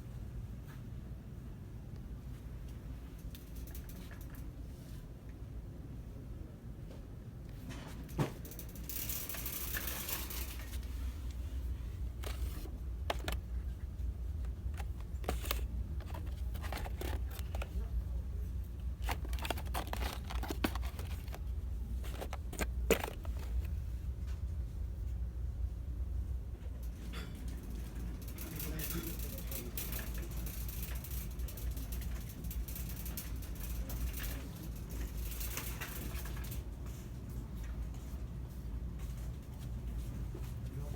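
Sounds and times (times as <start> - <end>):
steady low hum: 0.0 - 40.9
plastic crinkling: 12.1 - 13.4, 14.4 - 18.0, 18.8 - 23.8.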